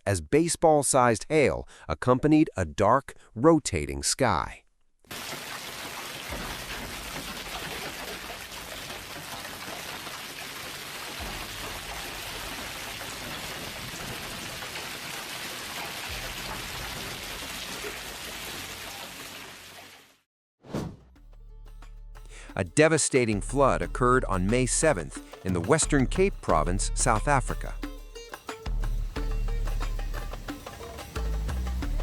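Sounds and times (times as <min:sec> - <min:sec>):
heavy rain falling: 0:05.1 - 0:19.2.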